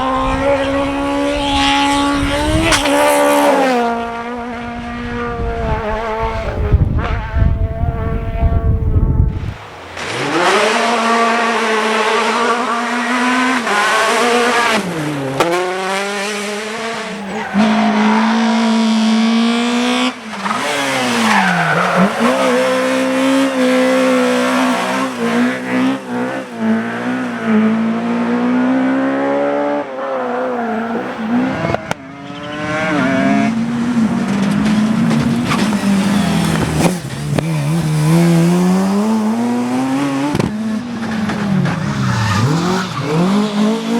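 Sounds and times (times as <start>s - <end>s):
rally car engines revving: 0.0s - 43.9s.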